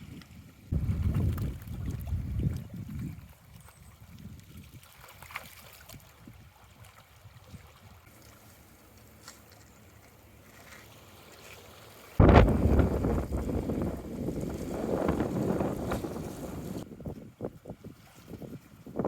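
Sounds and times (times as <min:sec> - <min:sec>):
wind rumbling on microphone: 0:00.0 - 0:04.9, 0:12.2 - 0:19.0
water gently lapping: 0:00.0 - 0:19.0.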